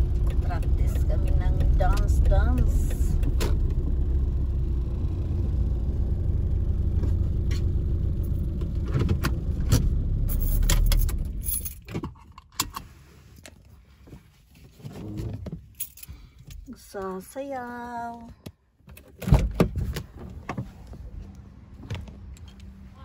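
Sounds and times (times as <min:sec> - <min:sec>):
car engine idling: 0:00.0 - 0:11.8.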